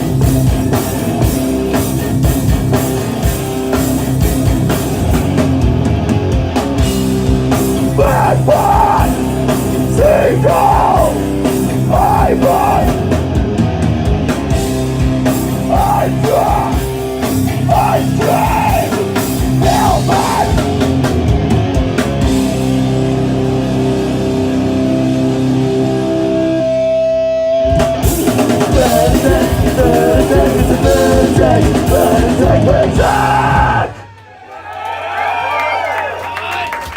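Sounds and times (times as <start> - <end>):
punk rock band playing live: 0.0 - 34.0
sung vocals: 7.7 - 13.2, 15.4 - 20.9, 28.2 - 34.1.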